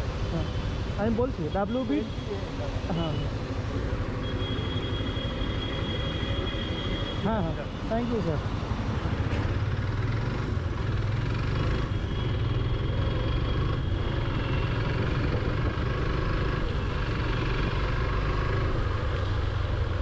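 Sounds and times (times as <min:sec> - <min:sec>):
road and air noise: 0:00.0 - 0:20.0.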